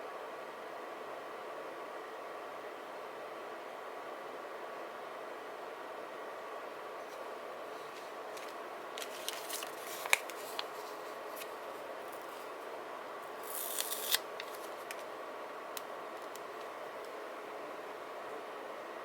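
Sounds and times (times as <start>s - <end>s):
background hum: 6.6s - 19.0s
paper being cut: 13.4s - 14.7s.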